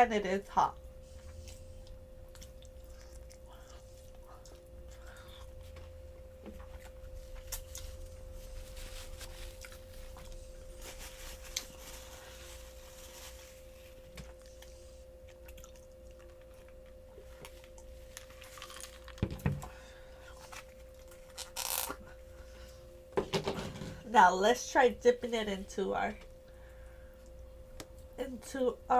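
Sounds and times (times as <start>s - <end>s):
steady low hum: 0.0s - 28.9s
crunchy chewing: 1.4s - 5.9s, 9.0s - 10.5s, 14.2s - 19.2s.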